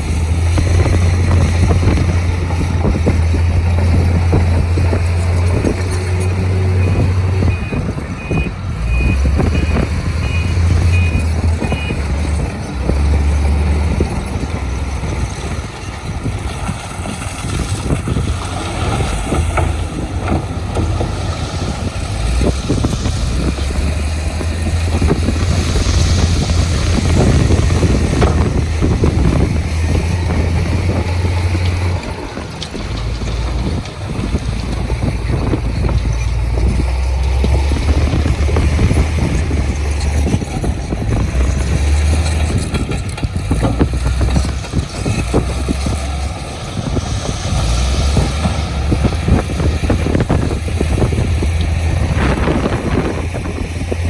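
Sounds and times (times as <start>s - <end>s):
heavy diesel machinery running: 0.0s - 54.0s
reversing alarm beeping: 6.6s - 12.2s.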